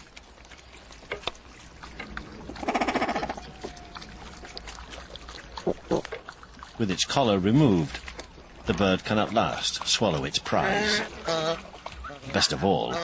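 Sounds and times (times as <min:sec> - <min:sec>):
water lapping and splashing: 0:00.0 - 0:13.0.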